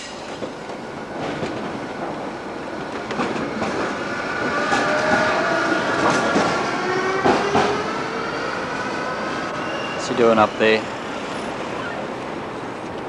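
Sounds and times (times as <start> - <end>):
electric tram on rails: 0.0 - 13.0
clicks over rail joints: 0.3 - 8.1.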